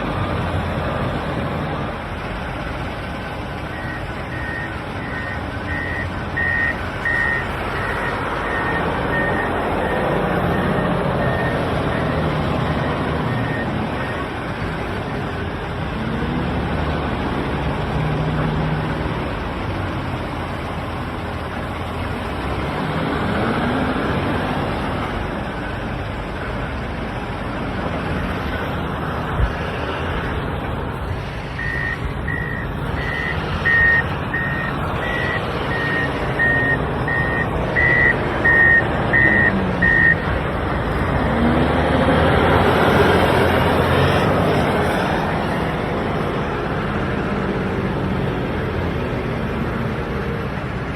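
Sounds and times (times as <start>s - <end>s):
wheel loader diesel engine revving: 0.0s - 50.9s
reversing alarm beeping: 3.7s - 14.4s, 31.5s - 40.9s.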